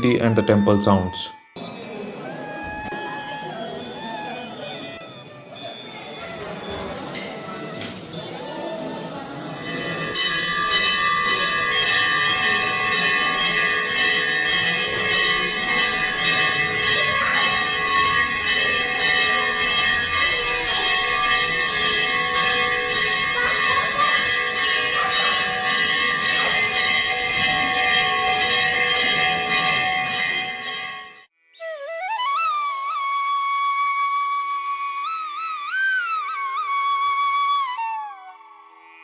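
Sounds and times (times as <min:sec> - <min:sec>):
metal bells ringing rapidly: 0:01.5 - 0:31.3.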